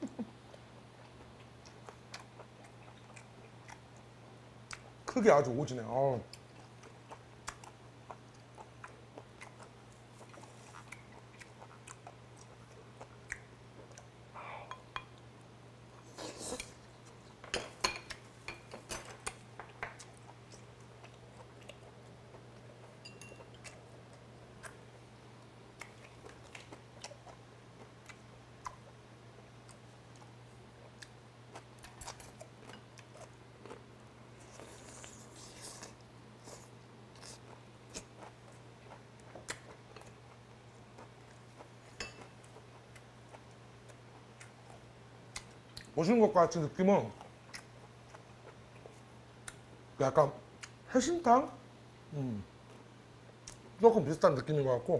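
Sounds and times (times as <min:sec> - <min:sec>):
chewing and biting: 0:06.4 - 0:14.1.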